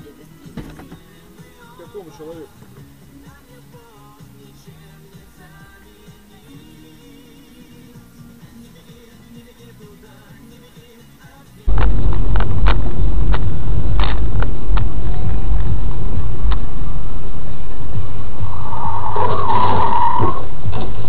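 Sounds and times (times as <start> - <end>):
heavy road rumble: 11.7 - 21.0
high squeal: 18.0 - 20.8.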